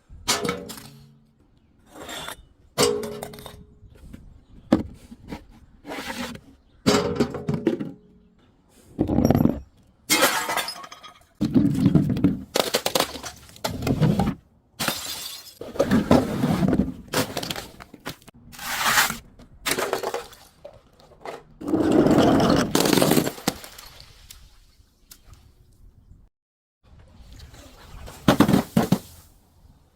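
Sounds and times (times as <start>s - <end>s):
glass breaking and crunching: 14.8s - 15.6s.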